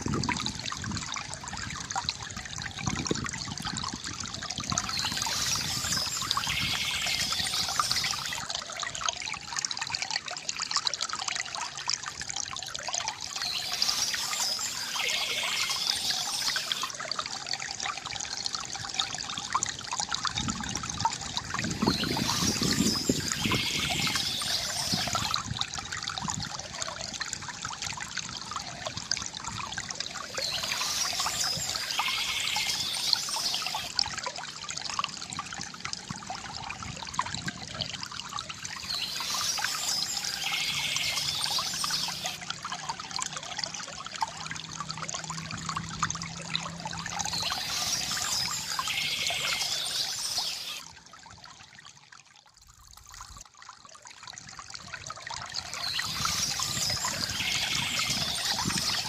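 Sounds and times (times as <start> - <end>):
small stream trickling: 0.0 - 59.0
birdsong: 4.7 - 8.4, 13.3 - 16.9, 21.8 - 25.4, 30.3 - 33.9, 38.7 - 42.4, 47.2 - 50.8, 55.7 - 59.0.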